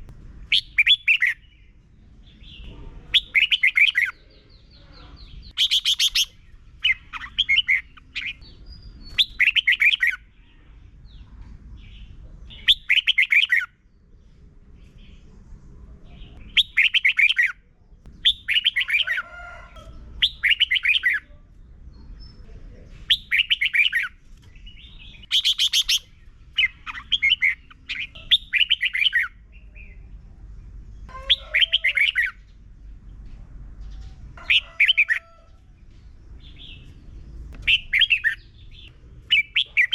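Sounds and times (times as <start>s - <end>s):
bird singing warbling phrases: 0.0s - 13.9s, 16.1s - 19.2s, 20.2s - 32.6s, 36.4s - 39.9s.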